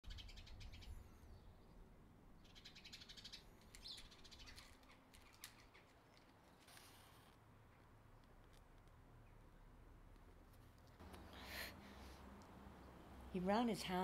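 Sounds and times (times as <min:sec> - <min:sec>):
birds chirping and trilling: 0:00.0 - 0:01.8, 0:02.4 - 0:06.6.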